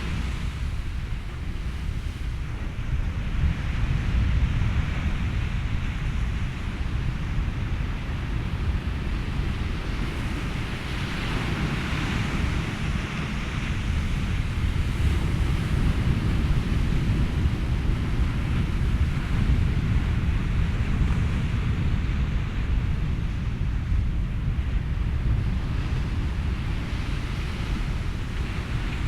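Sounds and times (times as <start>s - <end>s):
ocean waves: 0.0s - 29.0s
wind: 0.0s - 29.0s.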